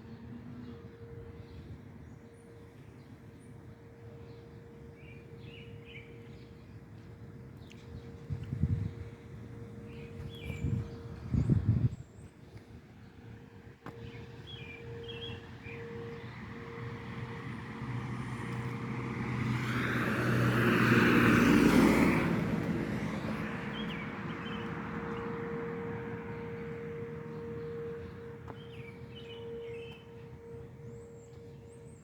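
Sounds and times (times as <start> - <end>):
distant warning siren: 0.0 - 32.0
birds chirping: 13.9 - 17.0, 23.0 - 32.0
vehicle passing by: 16.2 - 28.4.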